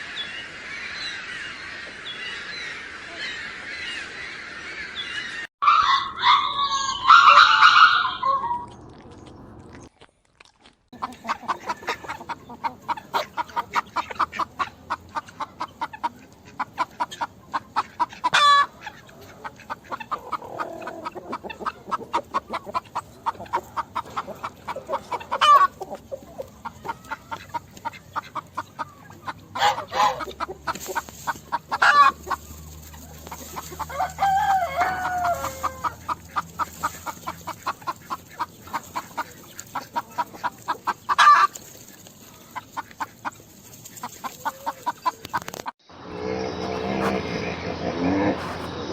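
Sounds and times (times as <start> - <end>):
hens clucking: 10.9 - 48.9
hen squawks: 11.0 - 41.6.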